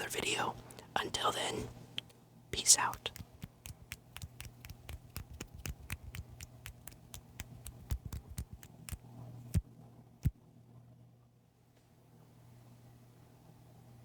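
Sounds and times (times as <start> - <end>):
low electrical hum: 0.0 - 14.0
rapid sharp clicks: 3.0 - 9.6.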